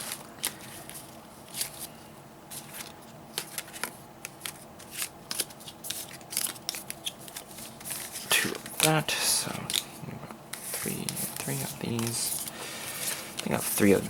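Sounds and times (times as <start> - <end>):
trading cards snapping and sliding: 2.6 - 9.9.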